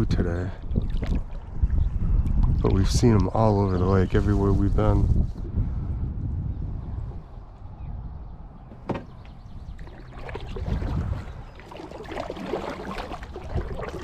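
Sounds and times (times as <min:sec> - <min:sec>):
paddle water splashing and dripping: 0:00.6 - 0:02.6, 0:08.9 - 0:14.0.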